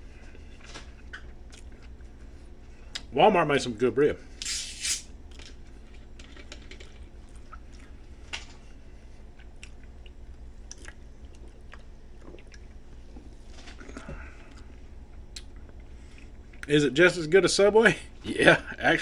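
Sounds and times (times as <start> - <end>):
person chewing food: 0.3 - 3.0, 5.3 - 16.7.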